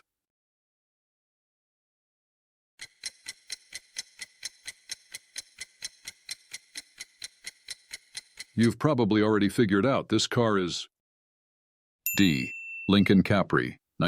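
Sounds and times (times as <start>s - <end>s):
clock ticking quickly: 2.8s - 8.8s.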